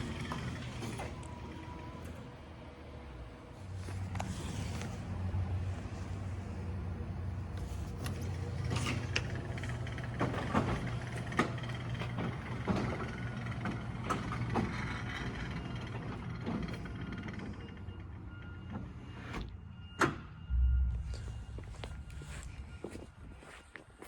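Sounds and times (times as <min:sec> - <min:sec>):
garage door motor hum: 0:08.2 - 0:15.3
garage door rollers clattering: 0:08.6 - 0:17.6.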